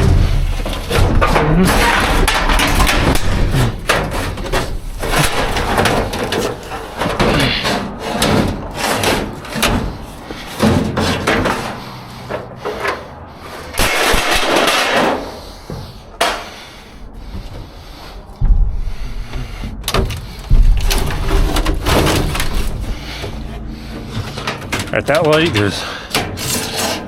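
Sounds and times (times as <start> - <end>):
debris clattering and knocking: 0.0 - 27.0
scraping and rustling: 0.0 - 27.0.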